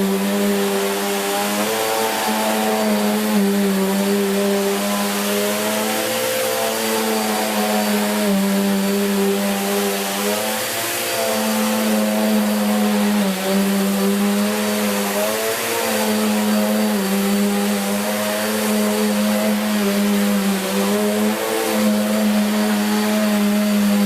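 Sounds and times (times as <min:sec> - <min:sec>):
vacuum cleaner running on carpet: 0:00.0 - 0:24.0.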